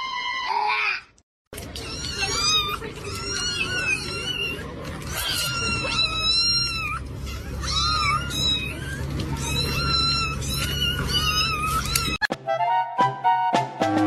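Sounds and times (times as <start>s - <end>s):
cat meowing: 1.7s - 12.2s.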